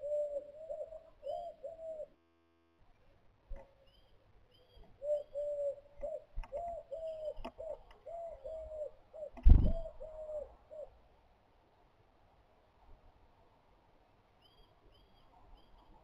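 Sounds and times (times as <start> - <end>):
bird hooting: 0.0 - 2.2, 3.9 - 11.0.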